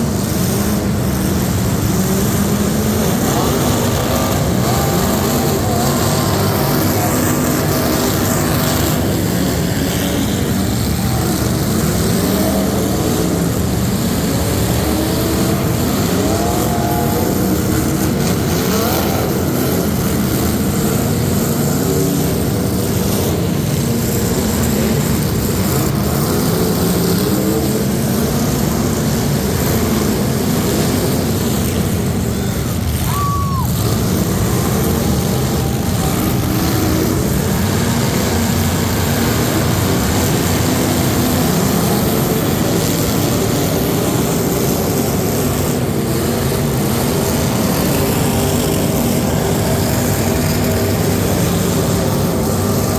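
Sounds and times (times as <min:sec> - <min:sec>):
truck engines revving: 0:00.0 - 0:52.9.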